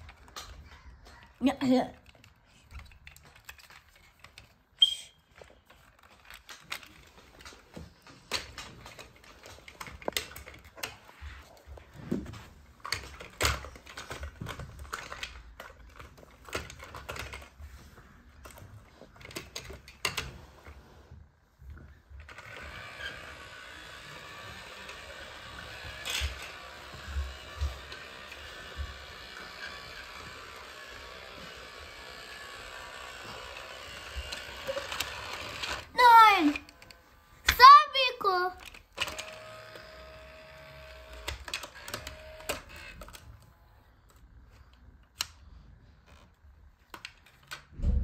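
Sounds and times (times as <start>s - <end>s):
plastic pieces clicking: 1.9s - 11.0s, 12.8s - 17.5s.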